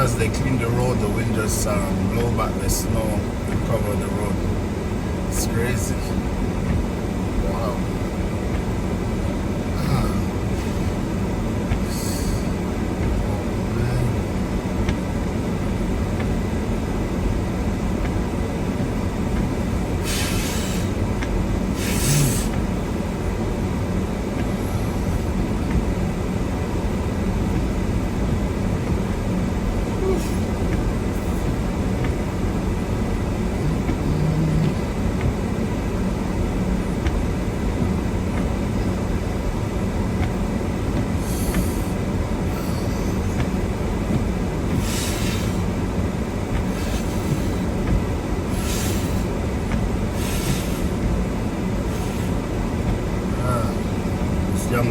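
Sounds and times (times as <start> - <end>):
car rumble from inside cabin: 0.0 - 54.9
short hisses: 20.0 - 21.0, 21.8 - 22.6.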